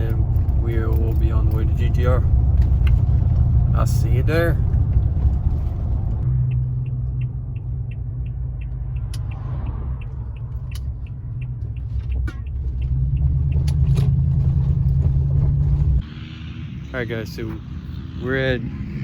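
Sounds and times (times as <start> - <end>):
vehicle engine and road drone: 0.0 - 19.0
light regular ticking: 6.2 - 13.9.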